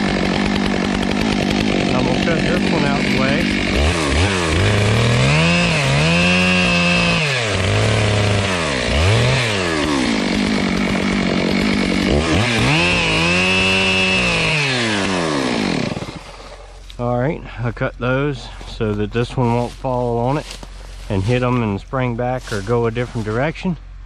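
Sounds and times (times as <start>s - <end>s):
chainsaw revving while cutting: 0.0s - 16.8s.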